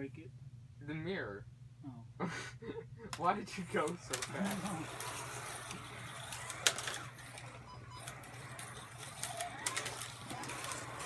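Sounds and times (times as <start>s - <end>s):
slot car motors whirring: 3.3s - 11.0s.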